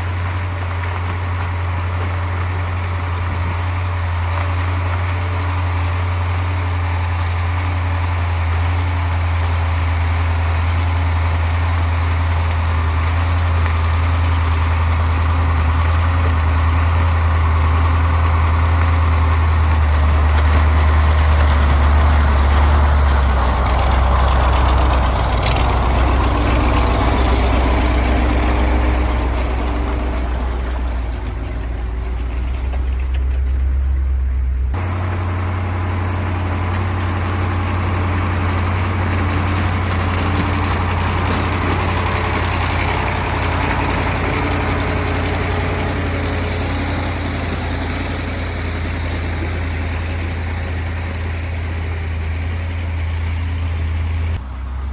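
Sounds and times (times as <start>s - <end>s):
truck diesel engine running: 0.0s - 54.9s.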